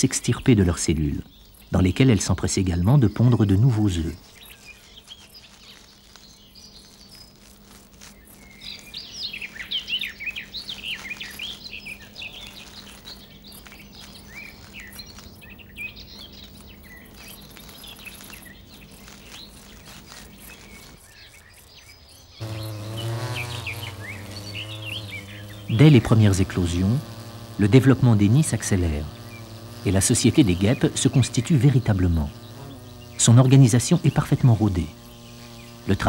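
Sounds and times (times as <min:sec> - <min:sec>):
small birds chirping: 0:00.0 - 0:36.0
low steady buzz: 0:22.4 - 0:36.0.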